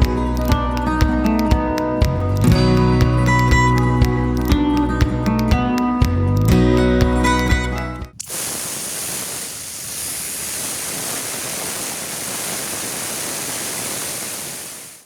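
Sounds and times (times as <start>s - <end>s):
steady even hiss: 8.2s - 15.0s.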